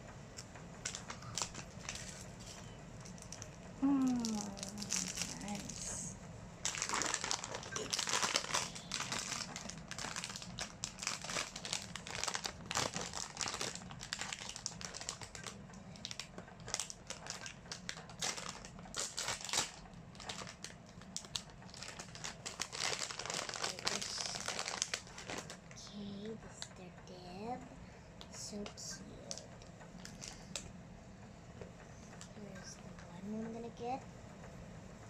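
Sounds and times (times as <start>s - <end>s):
crinkly packaging unwrapped: 0.8s - 6.0s, 6.6s - 25.9s, 29.3s - 30.6s.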